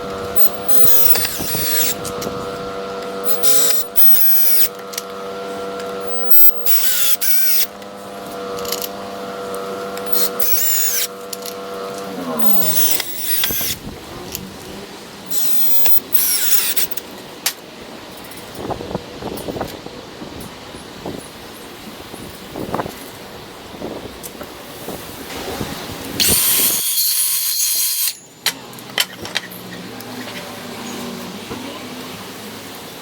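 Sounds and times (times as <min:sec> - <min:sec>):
electric drill motor running: 0:00.0 - 0:17.4, 0:25.4 - 0:28.2.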